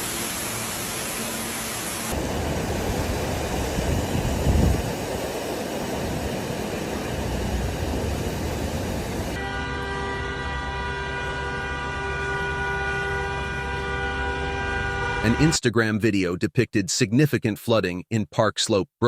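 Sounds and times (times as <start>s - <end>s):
steady rushing noise: 2.0s - 9.4s
horn chord: 9.4s - 15.6s.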